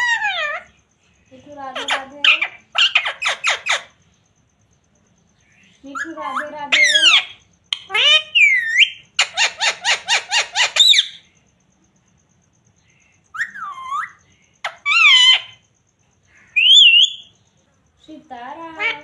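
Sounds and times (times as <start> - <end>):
parrot calling and whistling: 0.0 - 0.7, 1.7 - 4.0, 5.9 - 11.3, 13.3 - 15.6, 16.5 - 17.4.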